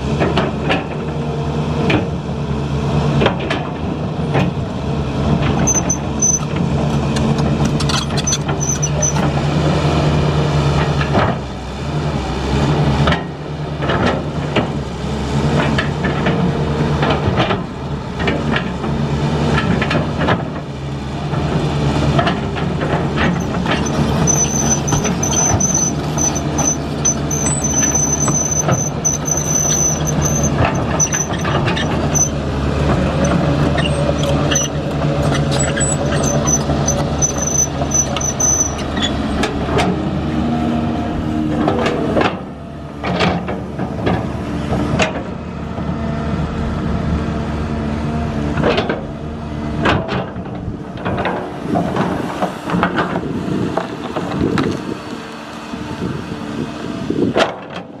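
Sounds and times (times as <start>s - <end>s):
diesel engine of heavy machinery: 0.0s - 58.0s
thin high-pitched squeal: 5.6s - 6.5s, 7.8s - 9.2s, 23.4s - 32.4s, 33.2s - 39.2s.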